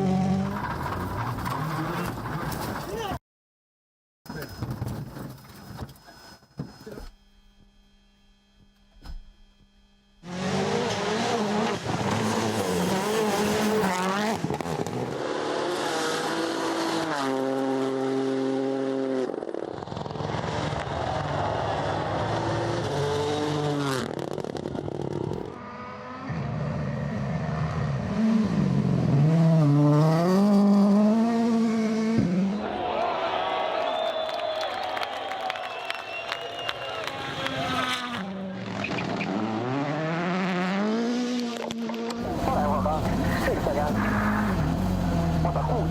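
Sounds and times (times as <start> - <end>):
rally car engines revving: 0.0 - 3.1, 10.2 - 32.7, 36.9 - 45.9.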